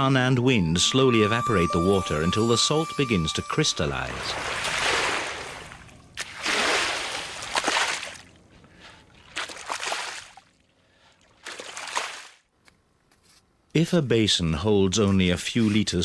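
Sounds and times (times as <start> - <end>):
water sloshing and splashing: 4.1 - 12.5.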